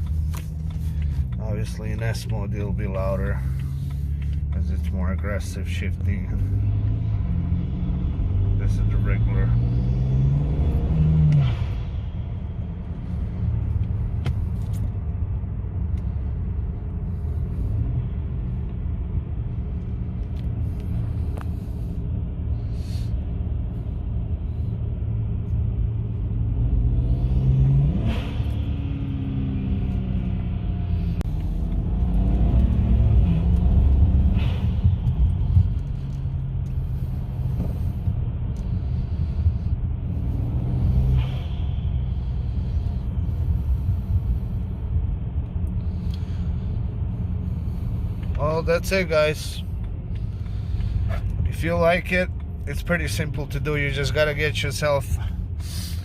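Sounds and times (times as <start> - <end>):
car engine revving: 0.0 - 12.2, 25.4 - 56.0.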